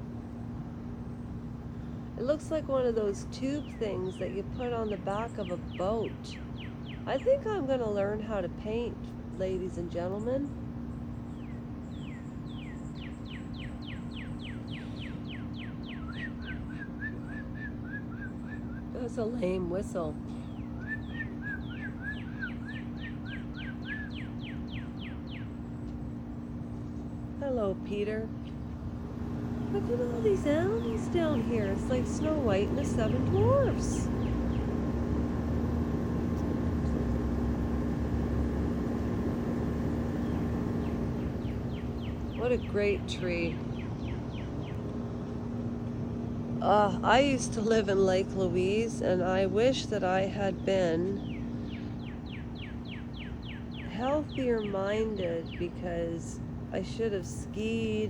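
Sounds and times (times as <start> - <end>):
engine low rumble: 0.0 - 58.0
steady low hum: 0.0 - 58.0
songbird whistling: 11.4 - 19.0, 20.4 - 25.5.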